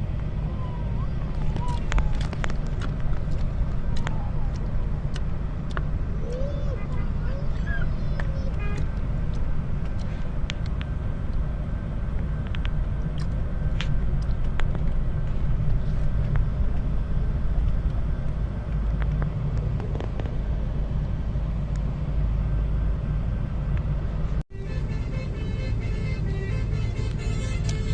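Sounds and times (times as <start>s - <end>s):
car engine and road noise: 0.0s - 27.9s.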